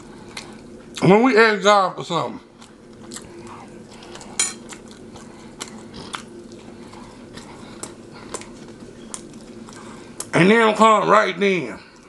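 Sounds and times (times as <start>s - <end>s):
chewing with mouth closed: 0.0s - 1.0s, 2.4s - 10.3s.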